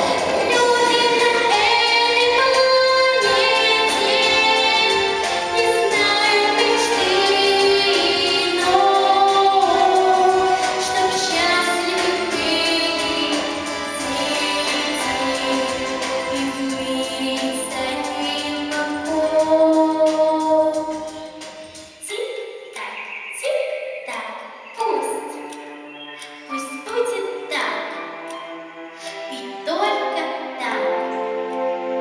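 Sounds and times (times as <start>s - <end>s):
girl singing with vibrato: 0.0s - 21.4s
instrumental accompaniment: 0.0s - 22.0s, 25.2s - 32.0s.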